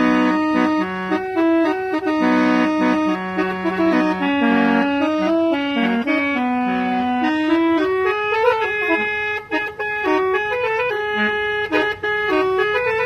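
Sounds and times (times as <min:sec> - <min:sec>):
musical car horn melody: 0:00.0 - 0:13.0.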